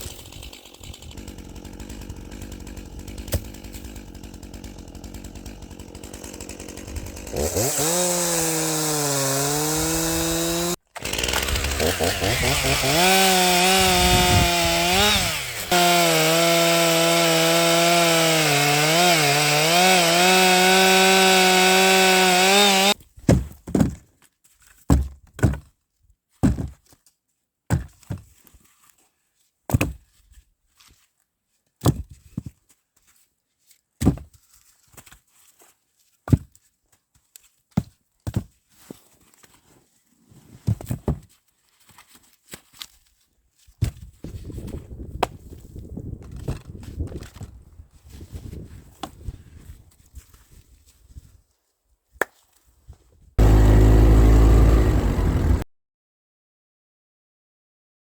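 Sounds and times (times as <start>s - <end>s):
chainsaw running at high revs: 0.0s - 23.0s, 53.4s - 55.6s
sharp wooden thunks: 3.1s - 4.0s, 22.5s - 24.0s.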